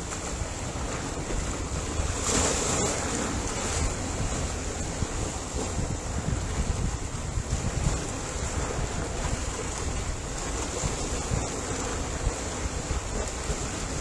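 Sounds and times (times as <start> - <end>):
ocean waves breaking on shore: 0.0 - 14.0.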